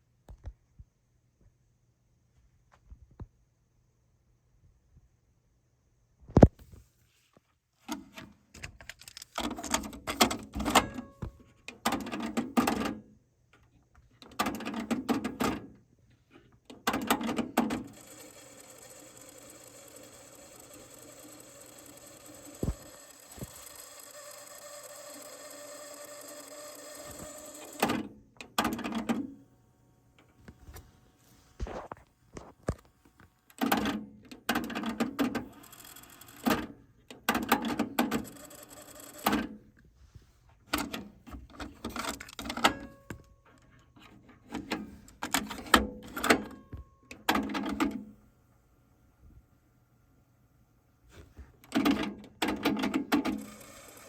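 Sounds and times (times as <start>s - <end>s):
mechanism clicks and clunks: 7.9s - 15.8s, 16.7s - 29.4s, 33.5s - 39.6s, 40.7s - 48.2s, 51.6s - 54.0s
cassette tape transport whir: 16.9s - 29.4s, 34.6s - 39.7s, 51.7s - 54.0s.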